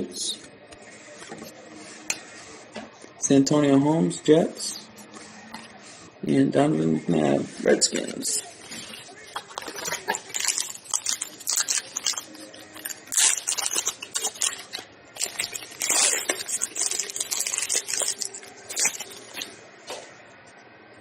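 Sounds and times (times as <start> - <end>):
wrapper tearing and crinkling: 9.3 - 19.5.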